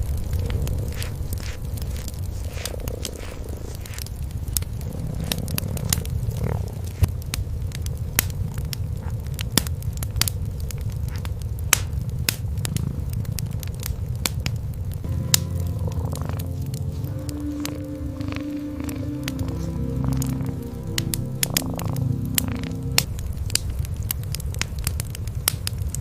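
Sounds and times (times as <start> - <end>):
cats purring: 0.0 - 9.4, 12.0 - 14.3, 15.1 - 23.2
wood fire crackling and popping: 0.0 - 26.0.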